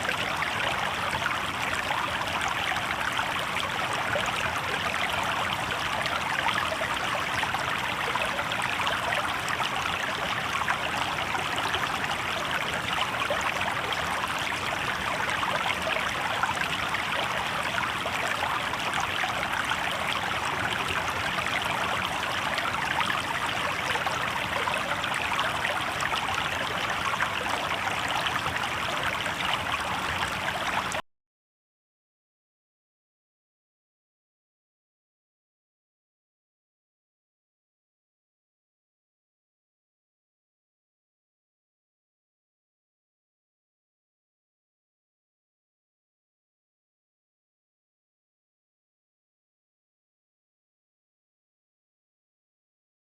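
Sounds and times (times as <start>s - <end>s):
river water babbling over rocks: 0.0s - 31.0s.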